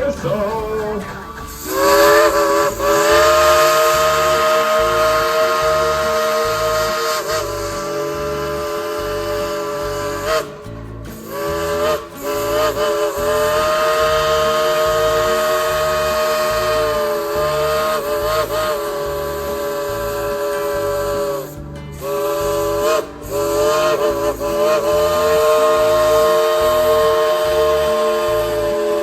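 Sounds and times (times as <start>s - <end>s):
low rhythmic pulsing: 0.0s - 29.0s
steam locomotive whistle: 0.0s - 29.0s.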